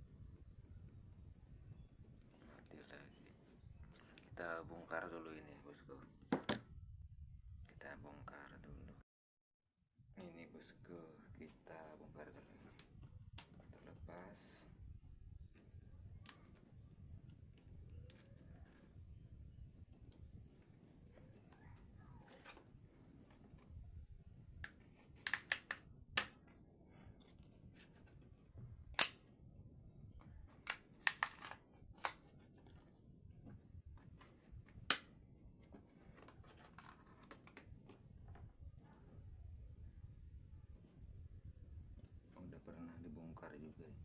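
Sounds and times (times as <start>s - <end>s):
plastic clicks and snaps: 16.2s - 16.6s, 24.6s - 26.6s, 28.9s - 29.2s, 30.2s - 32.8s, 34.0s - 35.1s.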